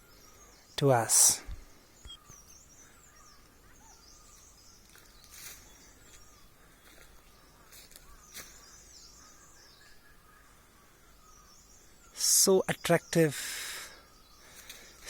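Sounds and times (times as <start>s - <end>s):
quiet outdoor ambience: 0.0s - 15.0s
rustle: 4.0s - 9.1s.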